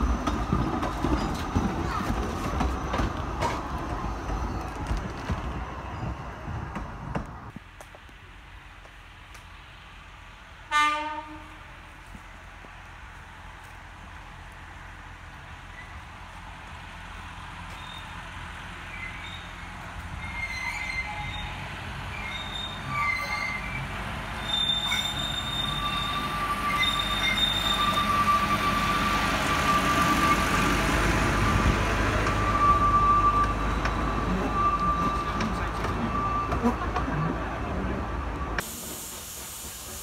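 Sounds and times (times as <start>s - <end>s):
diesel locomotive passing: 0.0s - 40.0s
high wheel squeal: 17.7s - 18.2s, 18.9s - 38.6s.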